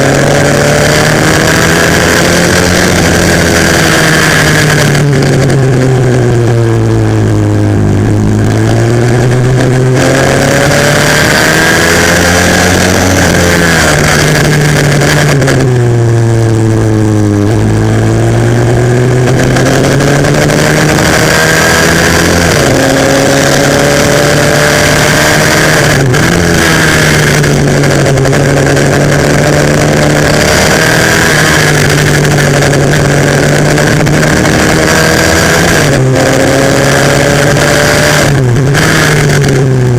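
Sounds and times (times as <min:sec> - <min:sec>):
pitbike engine revving: 0:00.0 - 0:39.9.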